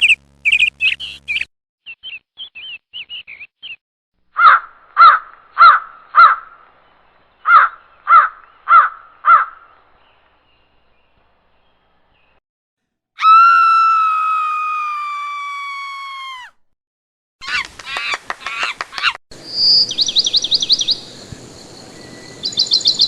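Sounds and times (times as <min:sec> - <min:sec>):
trill of chirps: 0:00.0 - 0:03.5
cartoon bird squawking: 0:04.4 - 0:06.4
outdoor hiss: 0:20.9 - 0:22.6.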